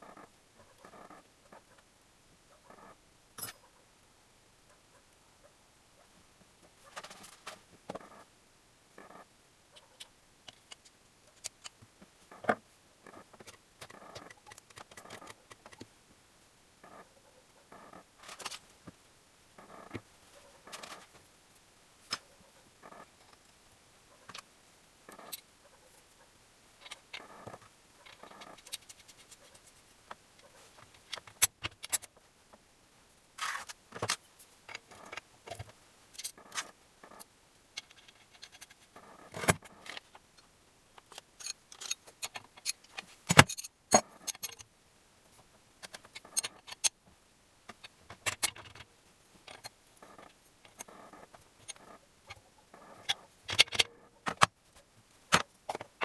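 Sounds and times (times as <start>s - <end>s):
metal tools clinking and scraping: 3.4s - 3.6s, 41.4s - 44.6s.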